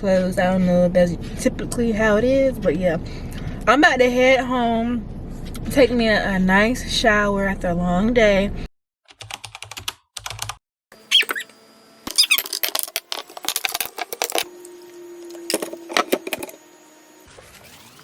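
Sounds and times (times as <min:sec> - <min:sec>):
small hard objects clattering: 0:12.1 - 0:14.5, 0:15.5 - 0:16.6.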